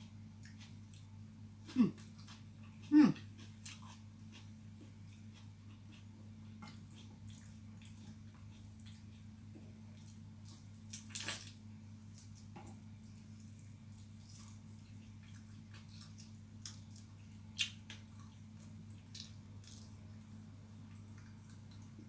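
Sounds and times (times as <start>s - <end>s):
wet chewing and mouth smacking: 1.7s - 11.2s, 12.1s - 20.2s.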